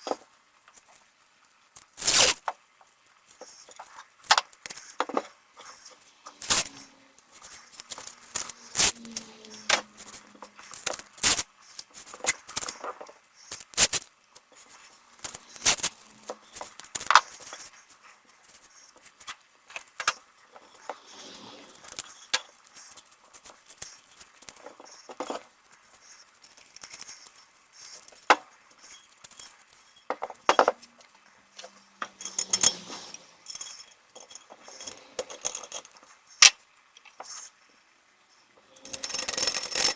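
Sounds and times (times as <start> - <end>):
small metal parts clinking: 2.0 - 2.4, 3.5 - 17.7, 26.4 - 36.2, 38.7 - 39.9.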